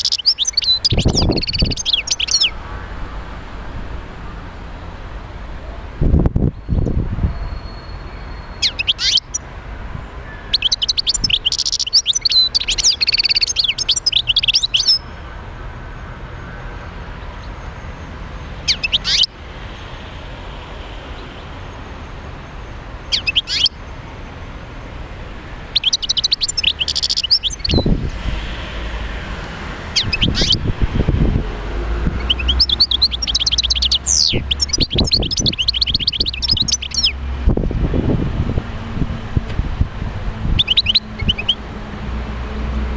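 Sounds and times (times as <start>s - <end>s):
goldfinch twittering trills: 0.0s - 2.6s, 7.7s - 9.4s, 10.5s - 15.1s, 18.7s - 19.3s, 23.1s - 23.8s, 25.7s - 27.9s, 30.0s - 30.6s, 32.2s - 37.2s, 40.6s - 41.6s.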